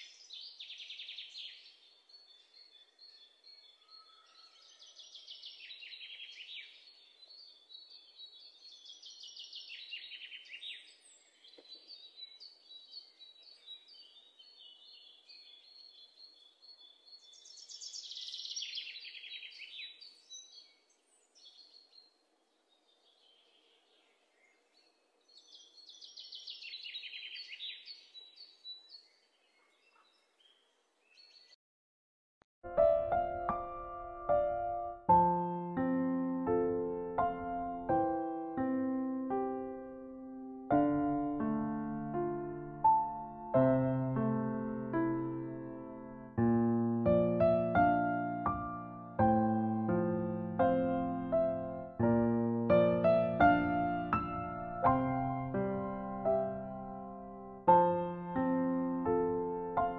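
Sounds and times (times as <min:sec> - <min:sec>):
faint bird chirps: 0:00.0 - 0:31.6.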